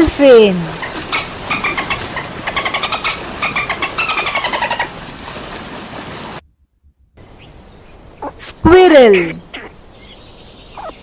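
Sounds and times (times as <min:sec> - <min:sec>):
dolphin squeaky pulses: 0:09.2 - 0:09.8, 0:10.8 - 0:11.0.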